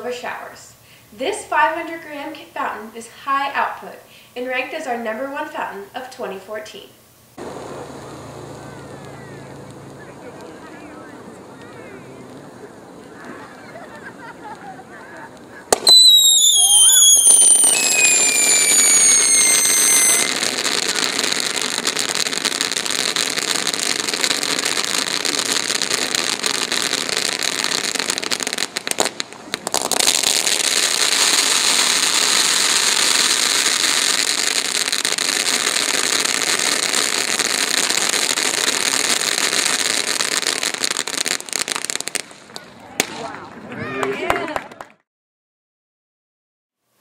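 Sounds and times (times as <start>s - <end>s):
firework whistles: 7.4s - 42.4s
firework fountain hissing spray: 7.4s - 43.2s.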